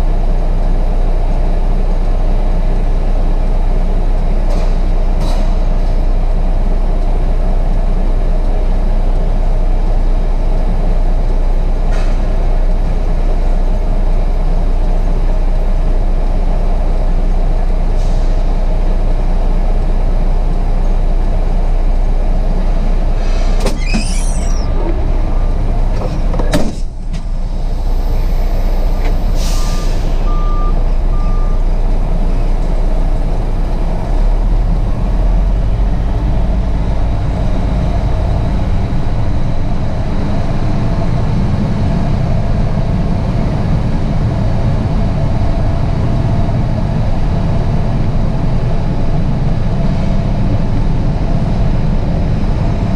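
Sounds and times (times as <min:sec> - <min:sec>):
diesel truck engine rumbling: 0:00.0 - 0:52.9
air brake hiss: 0:18.0 - 0:18.4, 0:23.2 - 0:24.5, 0:27.6 - 0:30.3
short beeps: 0:29.6 - 0:31.6.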